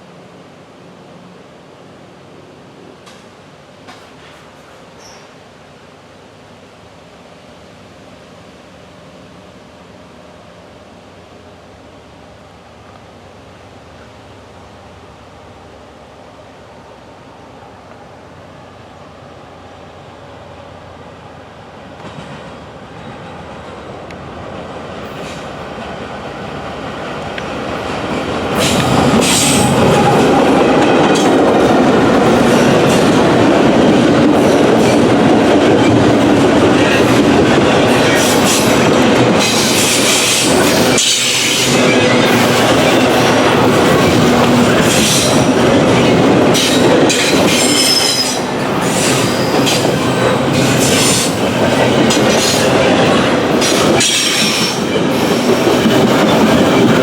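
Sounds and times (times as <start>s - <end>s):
freight train rolling past: 0.0s - 57.0s
steel wheels on rails: 25.0s - 57.0s.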